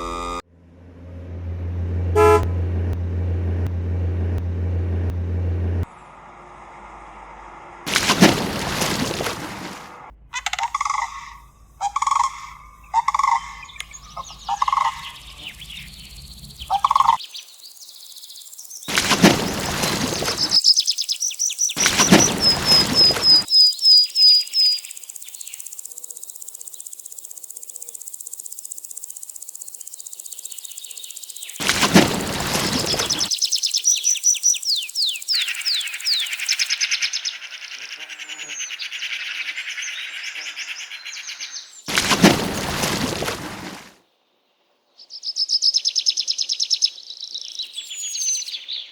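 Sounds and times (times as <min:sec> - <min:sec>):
high bird chirps: 0:10.6 - 0:18.9, 0:19.8 - 0:31.6, 0:32.6 - 0:41.9.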